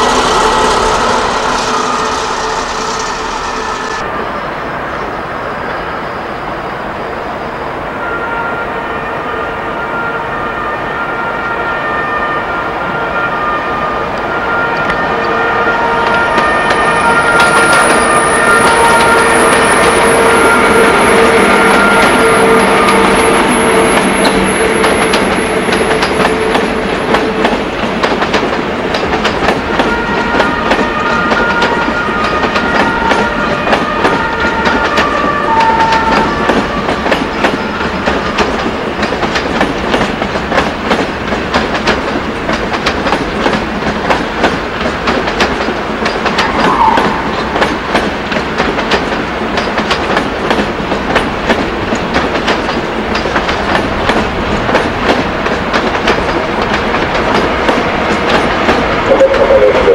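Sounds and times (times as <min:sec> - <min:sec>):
brief high-pitched tones: 0:00.0 - 0:04.4, 0:59.1 - 0:59.9
train wheels clattering over rails: 0:16.1 - 0:59.1.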